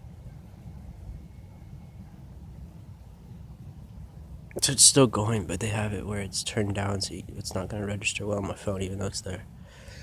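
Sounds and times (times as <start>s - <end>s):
faint thin whistle tone: 0.0s - 3.5s
train rumble over loudspeakers: 0.0s - 10.0s.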